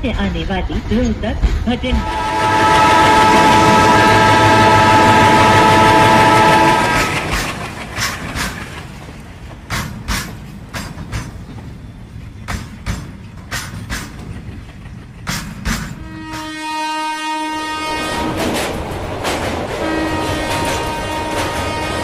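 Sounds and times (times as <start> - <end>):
diesel locomotive horn blast: 1.9 - 7.4, 16.0 - 18.5, 19.7 - 22.0
wagon wheels clicking over rail joints: 6.6 - 16.5.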